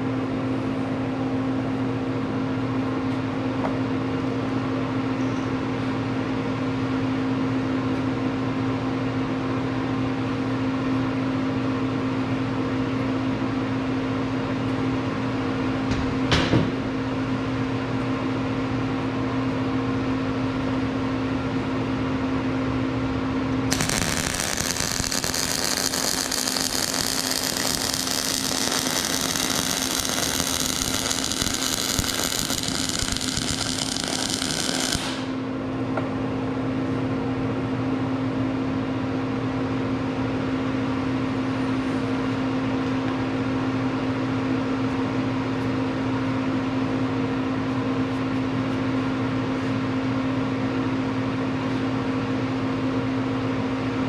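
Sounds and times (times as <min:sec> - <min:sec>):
machine hum: 0:23.5 - 0:35.8
loud hissing rush: 0:23.7 - 0:35.4.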